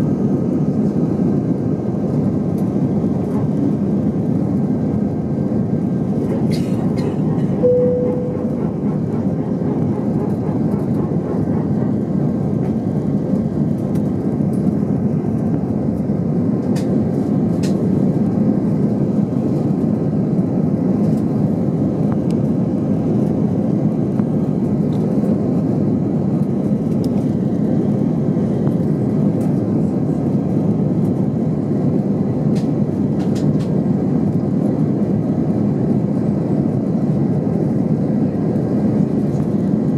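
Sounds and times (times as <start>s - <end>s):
airplane cabin engine rumble: 0.0s - 39.9s
short tone: 7.6s - 8.6s.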